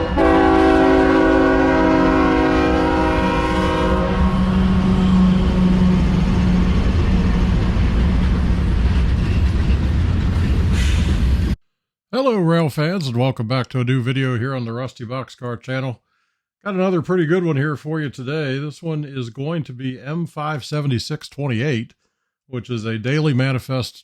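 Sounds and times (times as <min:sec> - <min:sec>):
locomotive horn chord: 0:00.0 - 0:07.0
passing train rumbling: 0:00.0 - 0:11.6.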